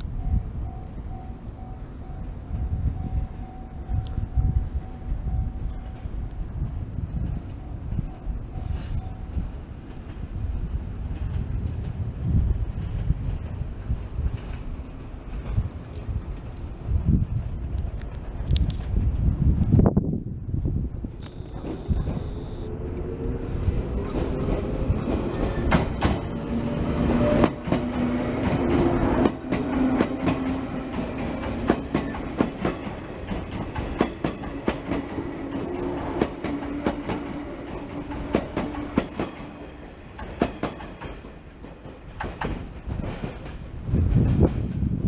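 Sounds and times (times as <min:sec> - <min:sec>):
electric train hum: 0:00.0 - 0:45.0
low rush: 0:19.0 - 0:40.2
train wheels clicking over rail joints: 0:21.1 - 0:45.0.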